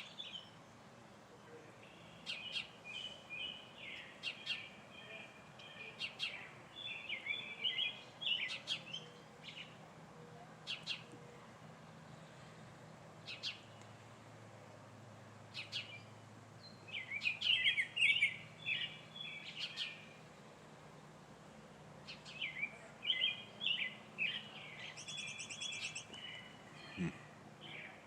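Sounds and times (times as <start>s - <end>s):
warbling birdsong: 0.0s - 11.5s, 13.2s - 14.1s, 15.4s - 28.0s
high bird trill: 15.6s - 20.2s, 22.1s - 27.9s
bird call notes: 22.1s - 28.0s.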